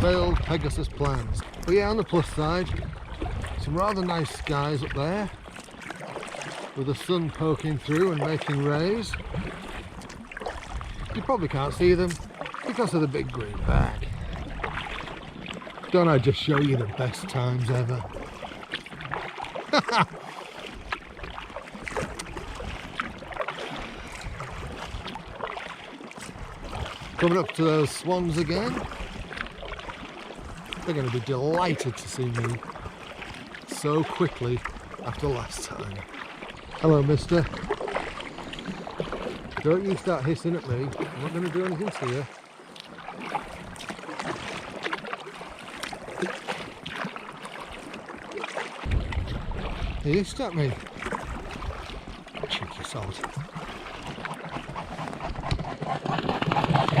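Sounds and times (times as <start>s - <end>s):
wind on microphone: 0.0s - 5.4s, 9.0s - 12.3s, 13.2s - 15.3s, 23.9s - 25.4s, 26.2s - 27.2s, 48.8s - 57.0s
paddle splashes and knocks: 0.0s - 57.0s.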